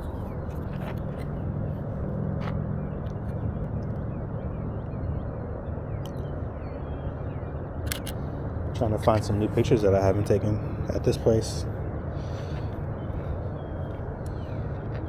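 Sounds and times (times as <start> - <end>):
low engine hum: 0.0 - 15.0
light clicks: 7.9 - 8.2.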